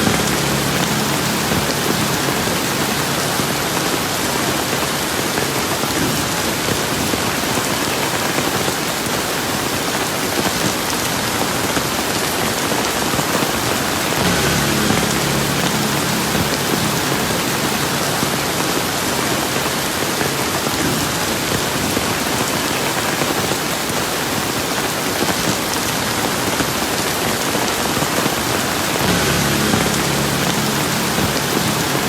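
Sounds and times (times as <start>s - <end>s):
faint low hum: 0.0s - 4.9s, 14.1s - 20.4s, 29.0s - 32.0s
steady rain falling: 0.0s - 32.0s.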